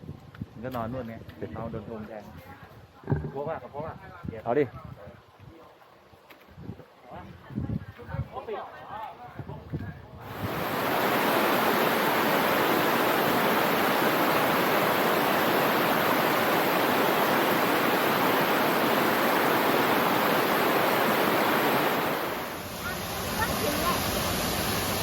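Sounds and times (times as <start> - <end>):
waterfall rushing: 10.3 - 25.0.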